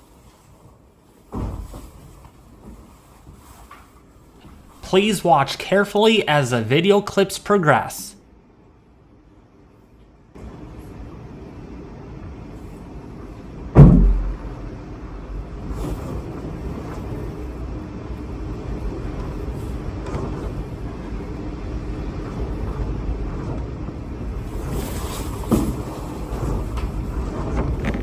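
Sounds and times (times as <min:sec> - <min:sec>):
loud thump: 0:13.8 - 0:15.6.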